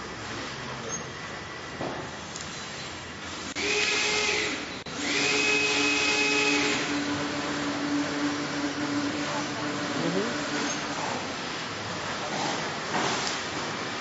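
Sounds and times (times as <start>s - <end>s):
power tool whirring: 3.4s - 11.1s.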